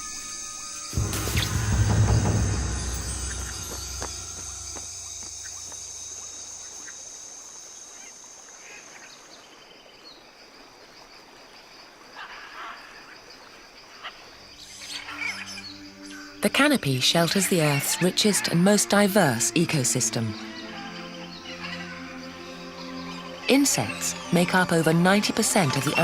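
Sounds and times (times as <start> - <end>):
music: 0.0 - 7.3, 14.6 - 26.0
high-pitched insect drone: 0.0 - 9.1.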